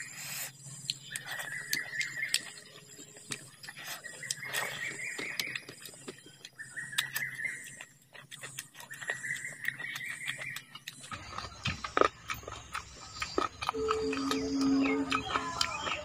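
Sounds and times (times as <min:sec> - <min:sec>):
wet chewing and lip smacking: 0:00.0 - 0:16.0
steady high tone: 0:13.7 - 0:16.0.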